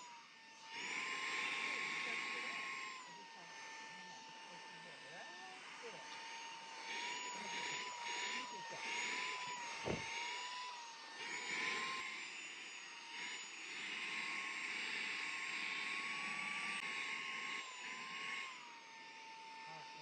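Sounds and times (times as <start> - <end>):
handheld vacuum motor whine: 0.0 - 20.0
thump: 9.8 - 10.1.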